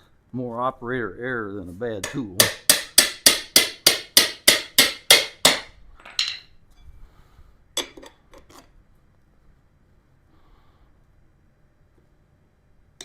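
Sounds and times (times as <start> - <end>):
hammer striking metal tools: 2.0 - 6.5.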